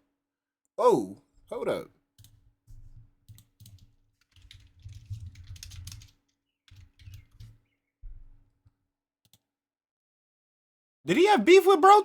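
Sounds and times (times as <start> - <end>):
computer keyboard and mouse clicking: 3.2 - 7.6.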